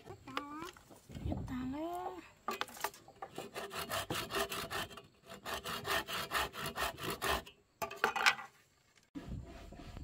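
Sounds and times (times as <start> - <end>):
hand saw cutting wood: 3.2 - 7.6, 9.2 - 10.0.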